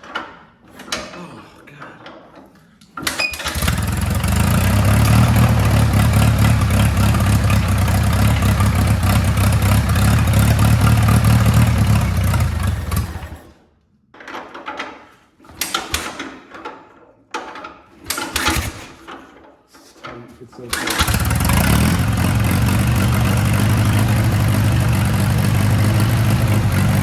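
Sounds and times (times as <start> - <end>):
tractor engine running: 3.4 - 13.4, 20.7 - 27.0.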